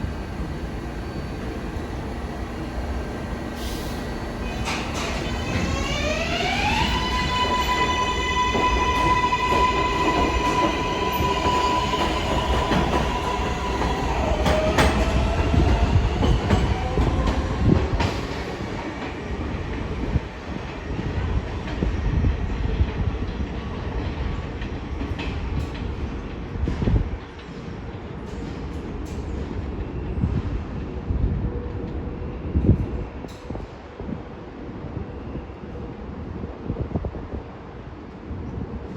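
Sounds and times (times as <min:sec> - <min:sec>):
subway train motors whining: 0:00.0 - 0:38.9
wheels clattering on rail: 0:00.6 - 0:19.2.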